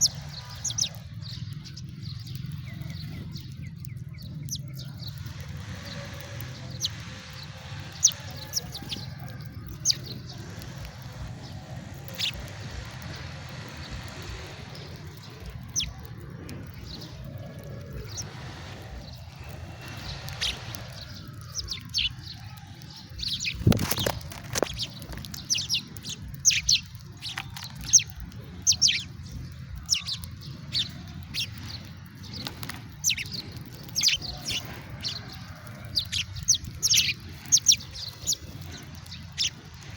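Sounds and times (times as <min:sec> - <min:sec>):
sparrows chirping: 0:00.0 - 0:39.9
steady low hum: 0:09.7 - 0:22.1.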